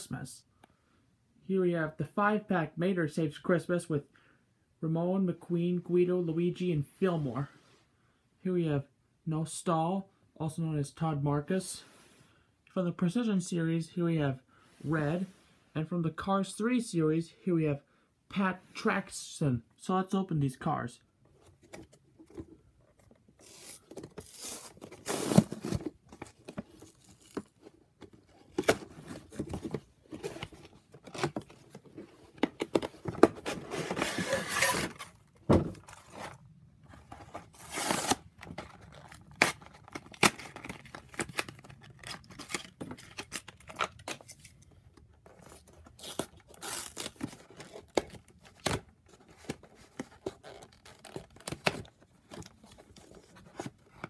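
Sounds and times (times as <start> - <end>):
cardboard packaging ripping: 23.4 - 27.6, 33.0 - 36.4, 37.1 - 44.6, 45.5 - 52.8.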